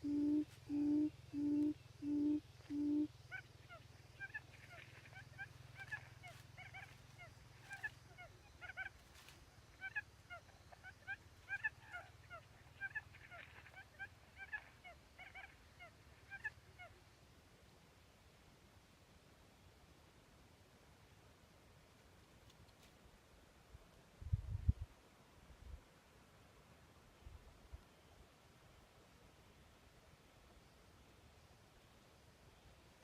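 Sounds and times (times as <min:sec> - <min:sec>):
low bird hoots: 0:00.0 - 0:08.4.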